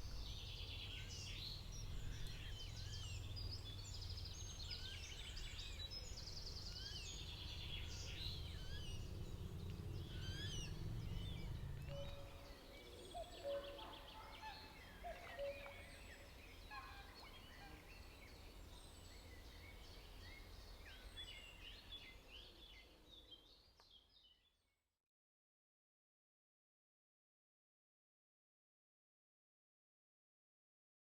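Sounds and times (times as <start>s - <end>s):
songbirds singing: 0.0s - 24.6s
low rumble: 7.1s - 12.4s.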